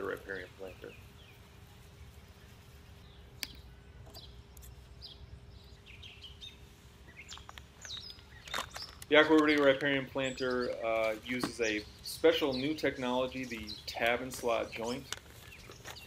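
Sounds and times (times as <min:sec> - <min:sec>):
small birds chirping faintly: 0:00.0 - 0:16.0.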